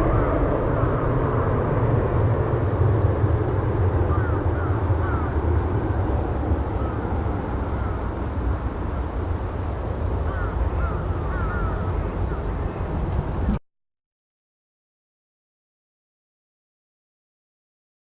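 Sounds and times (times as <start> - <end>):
distant jet engine rumble: 0.0 - 13.6.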